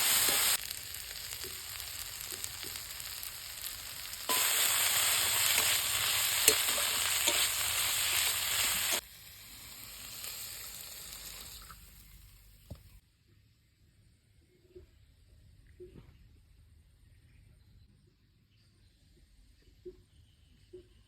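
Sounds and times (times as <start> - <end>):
curry sizzling in a pan: 0.0 - 13.0.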